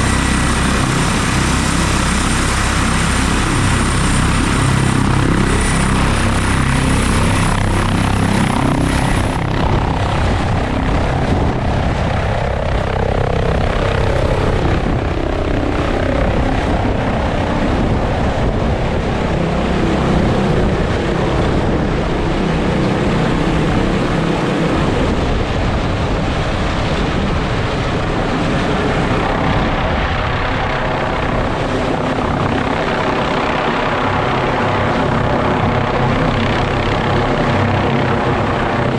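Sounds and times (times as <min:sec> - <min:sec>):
faint high whine: 0:00.0 - 0:26.3
helicopter rotor and engine: 0:00.0 - 0:38.9.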